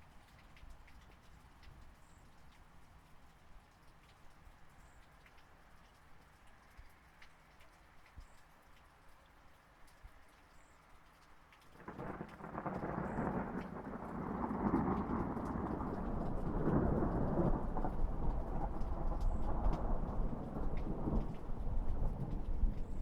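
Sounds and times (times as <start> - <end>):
rain pattering: 0.0 - 23.0
thunder rumbling: 11.8 - 23.0.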